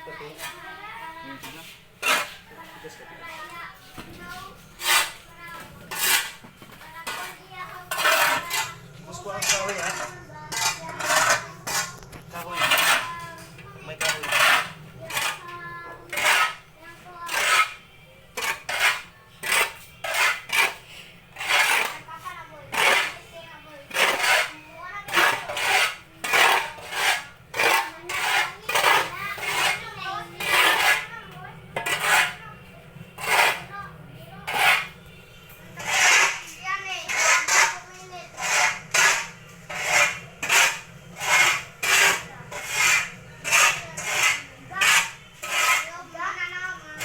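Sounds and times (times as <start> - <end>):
metal tool scraping sawdust: 1.4 - 2.8, 4.2 - 31.2, 31.8 - 32.4, 33.2 - 33.8, 34.4 - 35.1, 35.8 - 46.1
scoop scraping through sawdust: 35.8 - 45.9.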